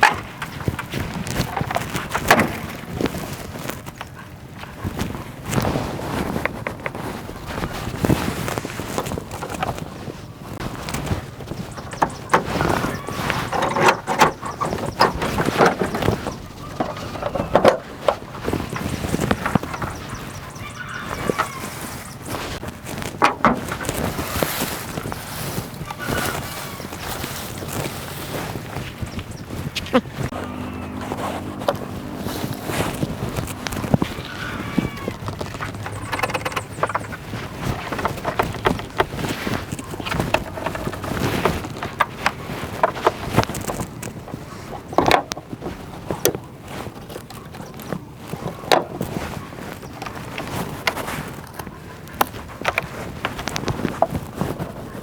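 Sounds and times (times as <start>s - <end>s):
irregular knocks and clattering: 10.6s - 21.6s, 22.6s - 25.2s, 30.3s - 44.1s
rough scraping noise: 30.2s - 43.5s.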